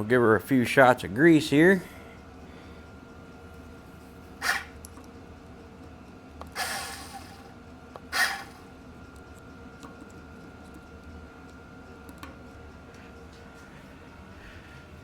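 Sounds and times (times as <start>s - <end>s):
grease gun squirting: 4.4s - 5.1s, 6.4s - 8.7s.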